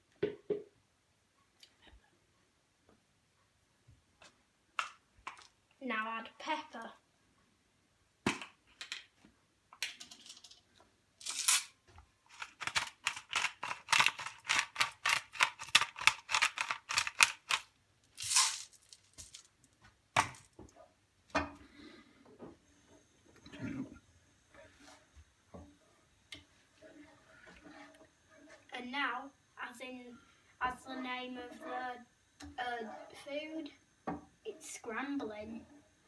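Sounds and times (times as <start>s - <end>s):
pepper grinder rasping: 11.2s - 19.5s.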